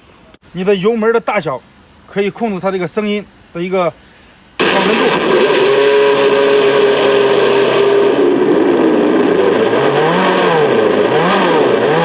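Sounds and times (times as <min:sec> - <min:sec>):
simulated engine revving: 0:04.6 - 0:12.0.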